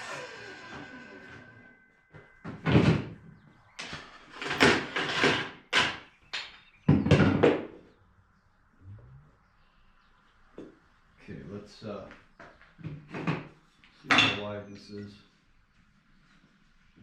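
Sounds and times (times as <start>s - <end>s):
power saw spinning down: 0.0s - 1.9s
wooden knocks and clunks: 2.1s - 7.8s, 12.4s - 13.5s.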